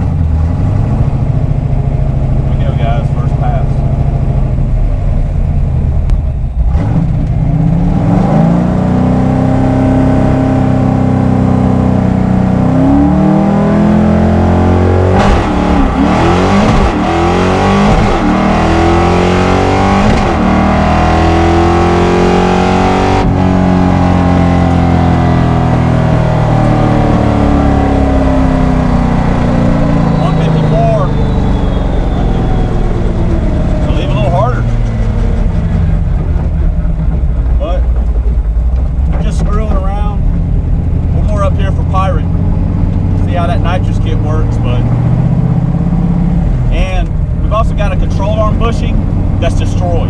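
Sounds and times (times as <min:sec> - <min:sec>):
engine at full throttle: 0:00.0 - 0:50.0.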